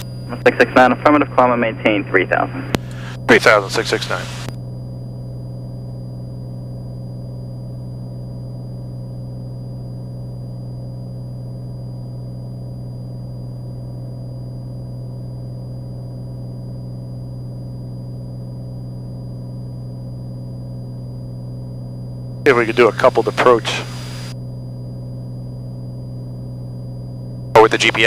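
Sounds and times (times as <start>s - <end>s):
propeller plane engine droning: 0.0s - 6.8s, 19.6s - 28.0s.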